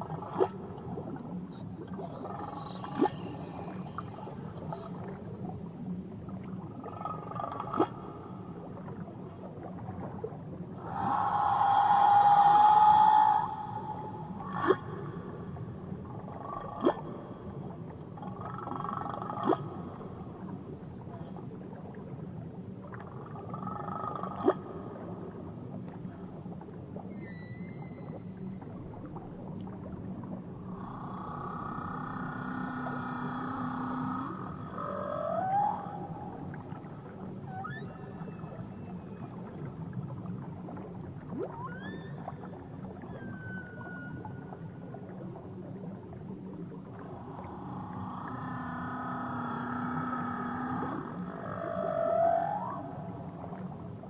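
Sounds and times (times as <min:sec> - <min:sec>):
low underwater wash: 0:00.0 - 0:54.0
whale calls underwater: 0:00.0 - 0:54.0.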